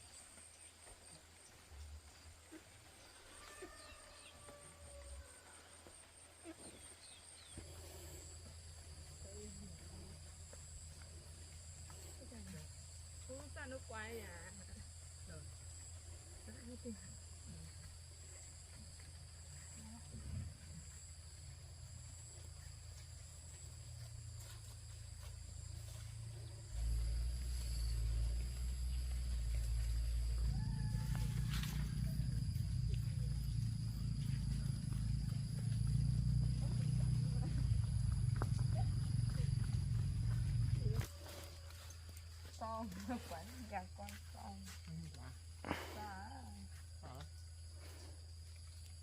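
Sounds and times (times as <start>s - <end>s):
insects trilling: 0.0s - 49.0s
low hum: 14.2s - 42.5s
low rumble: 25.6s - 41.1s.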